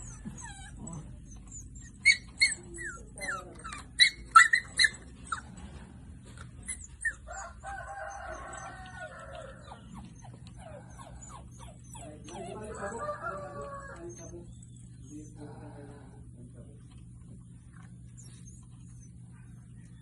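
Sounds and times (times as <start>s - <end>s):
animal yelping calls: 0.0s - 5.5s.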